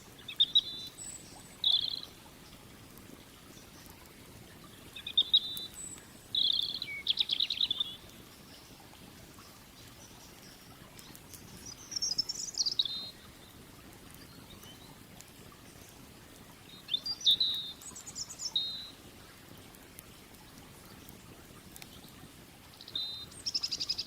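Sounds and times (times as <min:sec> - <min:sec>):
songbird warbling: 0:01.6 - 0:02.1, 0:05.0 - 0:08.0.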